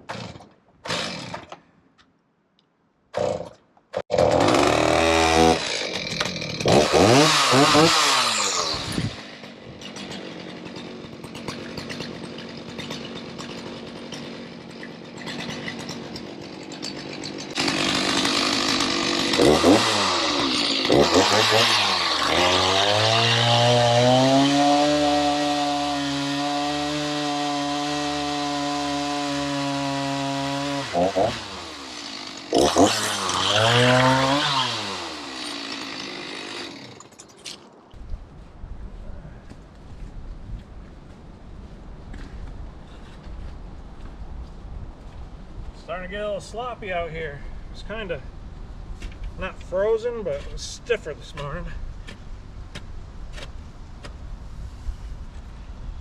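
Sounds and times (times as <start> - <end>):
chainsaw cutting into log: 0.0 - 1.6, 3.1 - 37.5
chainsaw pull-start: 0.0 - 1.6, 3.2 - 37.6
chainsaw revving and idling: 0.1 - 1.5, 3.2 - 37.1.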